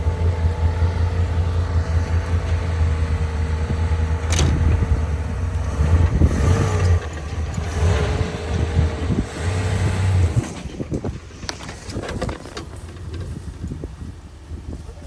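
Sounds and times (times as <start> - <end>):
pickup truck engine running: 0.0 - 15.0.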